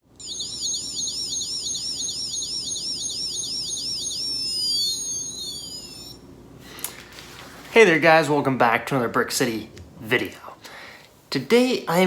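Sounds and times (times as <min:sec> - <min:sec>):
electronic siren warbling: 0:00.2 - 0:06.2.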